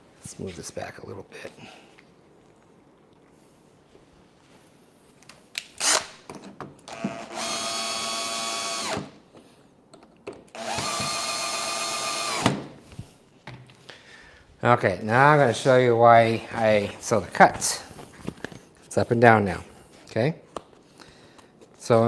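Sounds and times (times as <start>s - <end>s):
power drill running: 6.9s - 9.1s, 10.5s - 12.6s.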